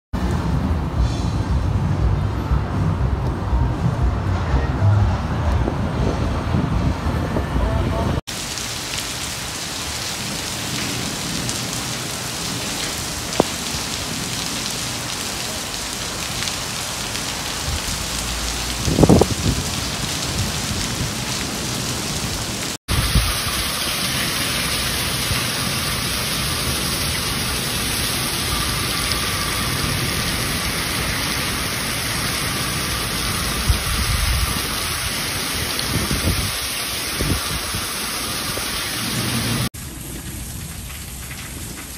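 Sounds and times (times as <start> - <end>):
rain pouring: 0.2 - 4.4, 5.5 - 41.9.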